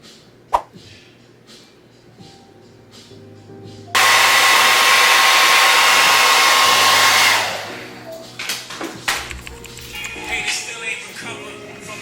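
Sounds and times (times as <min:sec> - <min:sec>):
hair dryer blowing: 0:04.0 - 0:08.1.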